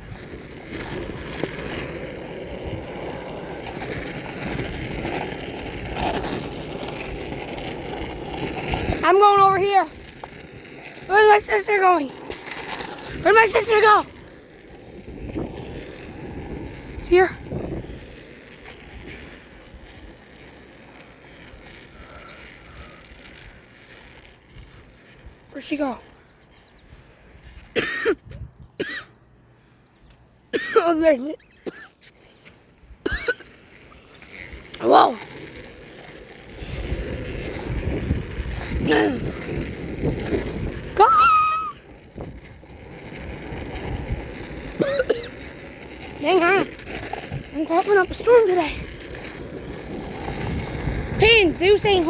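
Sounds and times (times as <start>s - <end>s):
bicycle riding wind and tyres: 0.0s - 52.0s
wind on microphone: 14.9s - 18.1s, 28.2s - 28.8s, 36.6s - 42.6s, 49.7s - 52.0s.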